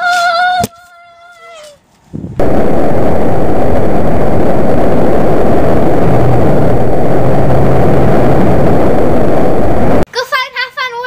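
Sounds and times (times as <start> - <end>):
loud low rumbling: 2.2 - 10.1.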